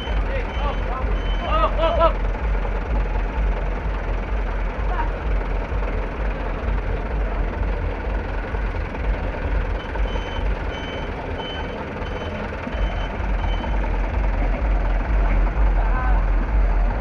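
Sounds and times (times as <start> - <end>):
vehicle reversing alarm beeping: 0.0 - 3.9, 8.1 - 15.6
low rumbling background din: 0.0 - 17.0.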